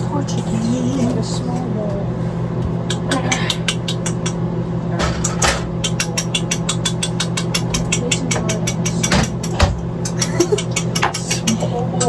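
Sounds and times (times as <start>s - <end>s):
steady low hum: 0.0s - 12.0s
rapid irregular clicking: 2.9s - 4.4s, 5.2s - 12.0s.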